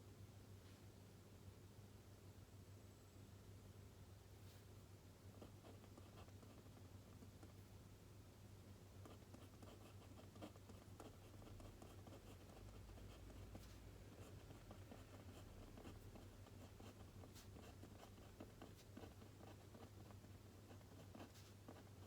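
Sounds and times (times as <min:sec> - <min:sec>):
steady low hum: 0:00.0 - 0:22.0
pencil scratching on paper: 0:09.0 - 0:22.0.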